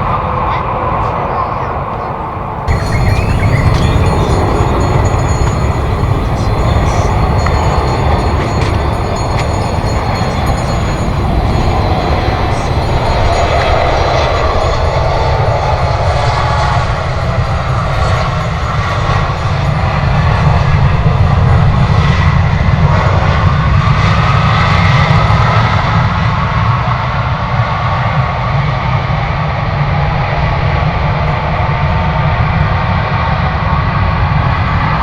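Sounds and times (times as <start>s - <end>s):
jet engines roaring: 0.0s - 27.5s.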